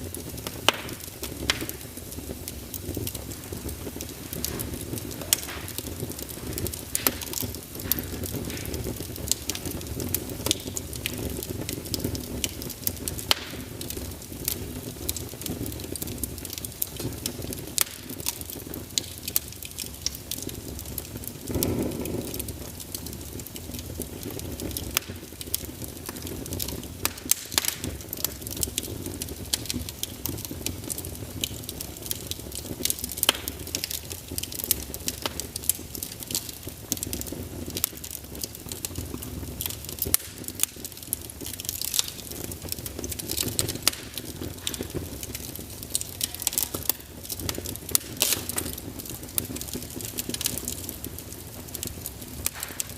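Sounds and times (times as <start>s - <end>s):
flame rushing: 0.0s - 52.9s
wood fire crackling: 0.0s - 52.9s.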